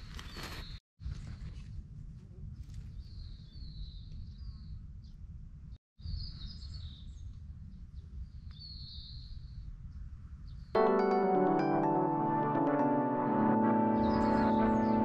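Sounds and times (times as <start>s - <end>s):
birds chirping: 13.6s - 15.0s.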